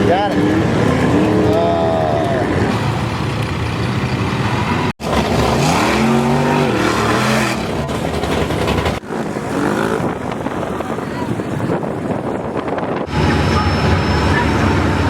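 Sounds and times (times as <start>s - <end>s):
engine revving: 0.0s - 11.0s
truck engine running loud: 0.0s - 15.0s.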